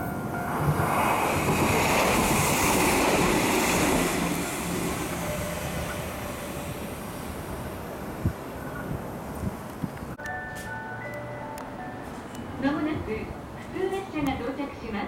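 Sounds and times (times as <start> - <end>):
electric train running on track: 0.0 - 10.4.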